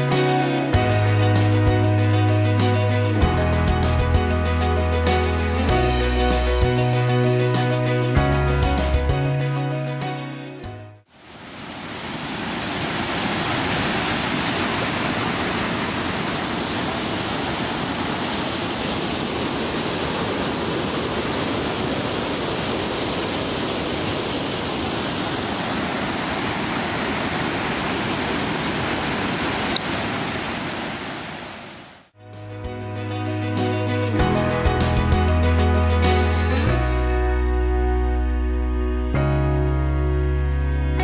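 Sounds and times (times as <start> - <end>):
rushing river rapids: 11.1 - 32.1.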